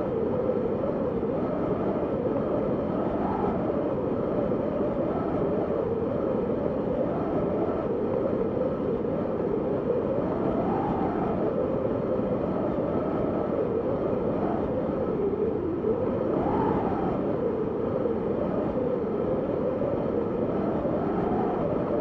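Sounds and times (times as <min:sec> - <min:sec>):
wind blowing: 0:00.0 - 0:22.0.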